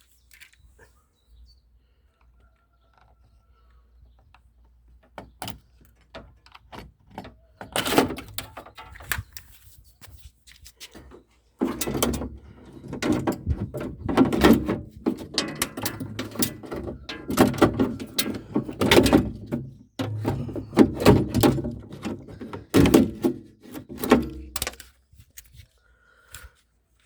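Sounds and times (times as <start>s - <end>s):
car door lock clunking and clicking: 11.6s - 24.8s.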